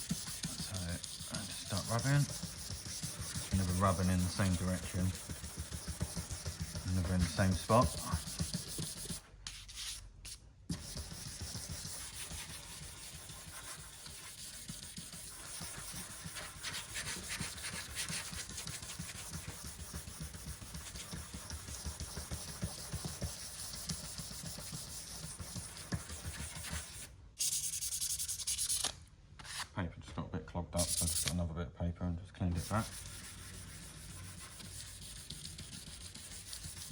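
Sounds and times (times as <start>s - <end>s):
sanding block rubbing: 0.0s - 9.6s, 10.7s - 28.8s, 32.6s - 36.9s.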